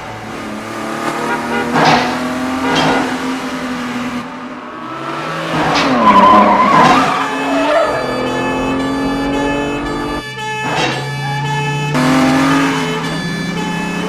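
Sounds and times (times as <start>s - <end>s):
car engines revving: 0.0s - 14.0s
tyres squealing: 4.7s - 14.0s.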